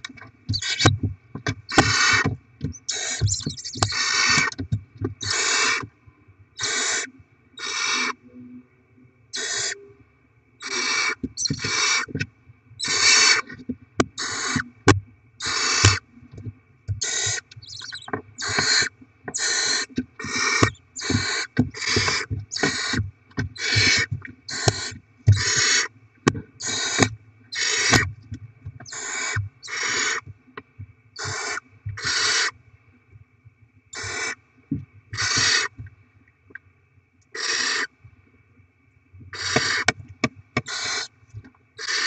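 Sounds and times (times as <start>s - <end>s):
owl chicks hissing begging calls: 0.5s - 0.9s, 1.7s - 4.5s, 5.2s - 5.8s, 6.6s - 8.2s, 9.3s - 9.8s, 10.6s - 12.1s, 12.8s - 13.5s, 14.2s - 14.6s, 15.4s - 16.0s, 17.0s - 23.0s, 23.6s - 25.9s, 26.6s - 28.1s, 28.9s - 30.2s, 31.2s - 32.5s, 34.0s - 34.4s, 35.2s - 35.7s, 37.4s - 37.9s, 39.3s - 39.9s, 40.6s - 41.1s, 41.8s - 42.0s
sharp clicks: 16.9s - 18.8s.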